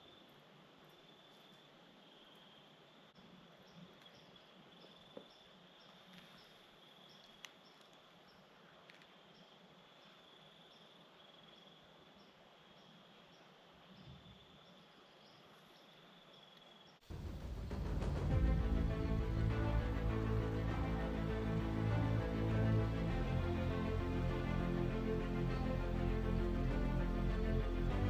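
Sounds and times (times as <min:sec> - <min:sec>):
faint clicks: 0:07.2 - 0:09.2
music: 0:17.1 - 0:28.0.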